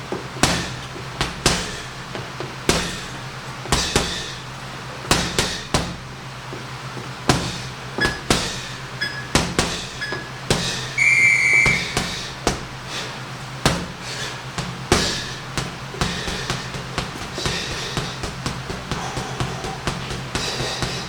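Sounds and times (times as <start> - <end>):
punches thudding into heavy bag: 2.7 - 4.3
electronic timer beep: 9.0 - 9.4, 11.0 - 12.0.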